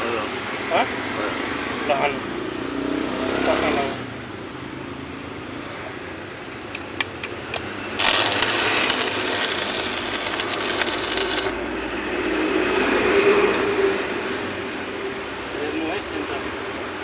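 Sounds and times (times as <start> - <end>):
arc welder sizzling: 7.6 - 12.2.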